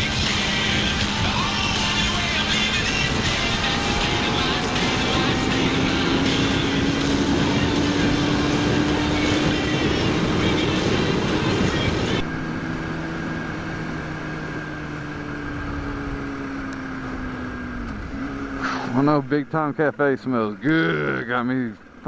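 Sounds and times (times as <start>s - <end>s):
heavy wind noise: 0.0s - 12.4s
motorcycle engine cruising: 0.0s - 22.0s.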